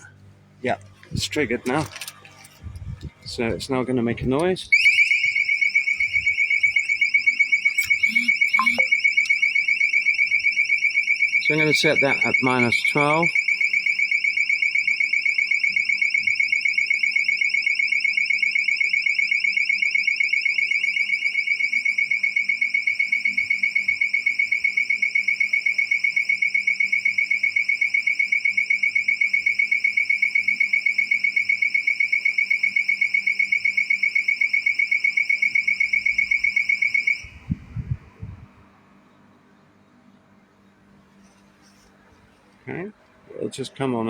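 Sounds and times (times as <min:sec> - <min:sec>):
high-pitched pulsing alarm beep: 0:04.7 - 0:37.6.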